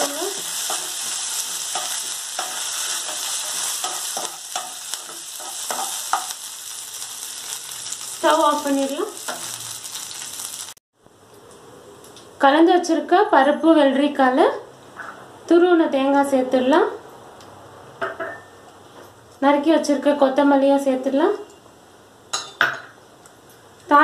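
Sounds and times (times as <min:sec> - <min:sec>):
food sizzling in hot oil: 0:00.0 - 0:10.8
spatula scraping and tapping pan: 0:00.3 - 0:06.4.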